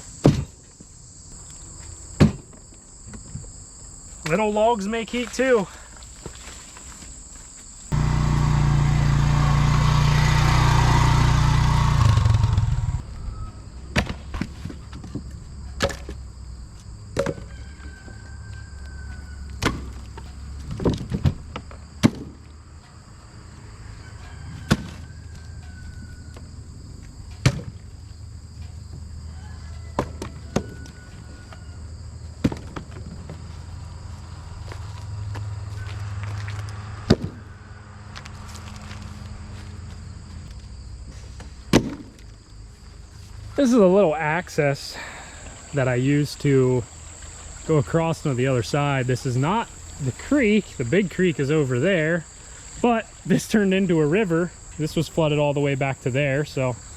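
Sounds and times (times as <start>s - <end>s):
loud rush with low hum: 8.0s - 13.0s.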